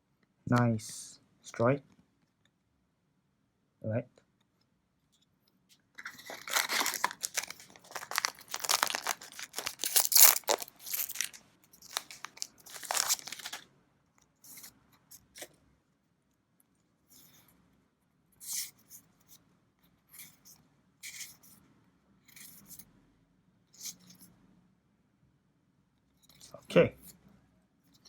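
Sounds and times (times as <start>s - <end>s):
faint handling rustles: 5.1s - 13.6s
wrapper tearing and crinkling: 6.0s - 13.6s.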